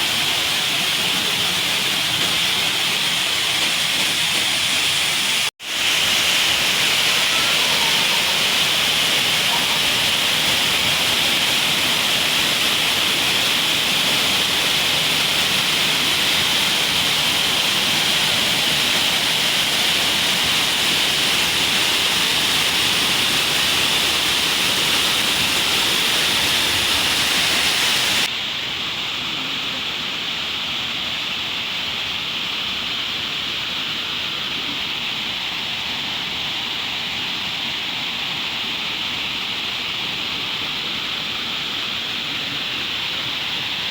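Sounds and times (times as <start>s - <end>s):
waterfall rushing: 0.0s - 30.2s.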